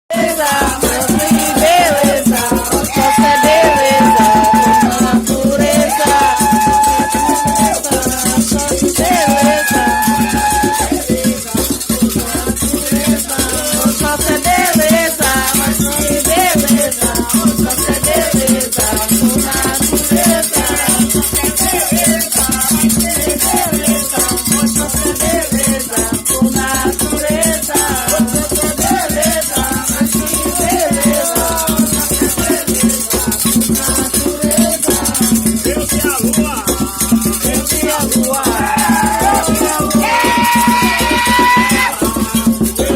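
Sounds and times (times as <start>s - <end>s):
shaken rattles: 0.1s - 42.9s
steady percussion beat: 0.1s - 42.9s
voices singing a chant: 0.1s - 42.9s.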